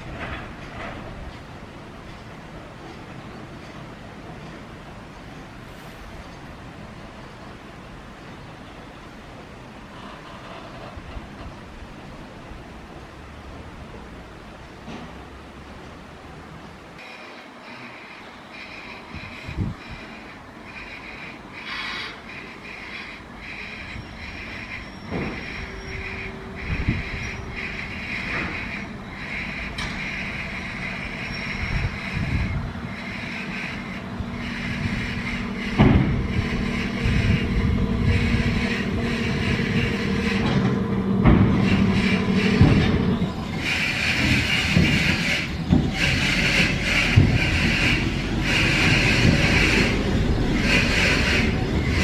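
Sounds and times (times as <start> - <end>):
wheels clicking over rail joints: 0.0 - 5.6, 17.0 - 52.0
train motor hum: 17.0 - 52.0.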